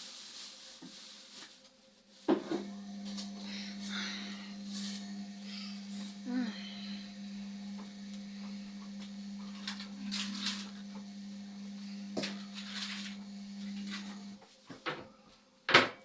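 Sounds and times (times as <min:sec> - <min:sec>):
washing machine humming: 0:02.3 - 0:14.4.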